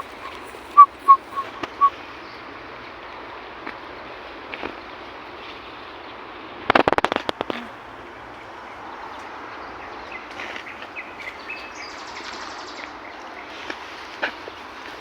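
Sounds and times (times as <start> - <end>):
small birds chirping: 0.0 - 2.5
steady outdoor hiss: 0.0 - 15.0
rattle of loud clicks: 6.7 - 7.6.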